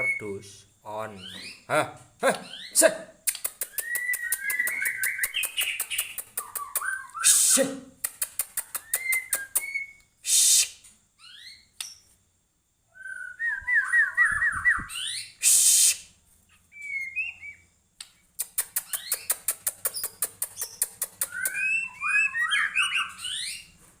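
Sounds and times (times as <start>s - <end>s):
bird singing whistled phrases: 0.0s - 0.4s, 3.6s - 7.7s, 8.7s - 12.0s, 12.9s - 16.0s, 16.7s - 17.7s, 20.0s - 23.7s
bird ticking notes: 2.3s - 7.2s, 18.4s - 22.0s
harsh bird call bursts: 4.4s - 7.9s, 10.2s - 10.8s, 15.0s - 16.1s.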